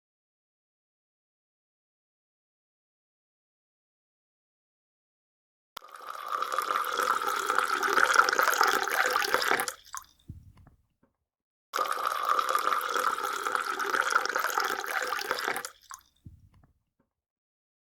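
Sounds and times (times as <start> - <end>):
water pouring: 5.8 - 10.6, 11.8 - 16.6.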